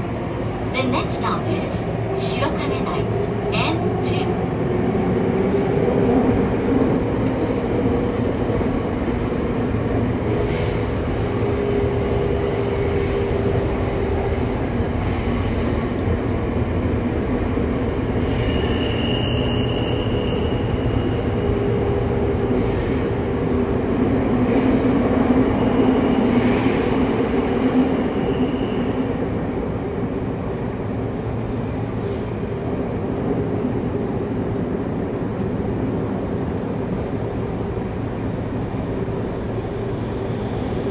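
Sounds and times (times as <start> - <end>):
train rumbling in tunnel: 0.0 - 40.9.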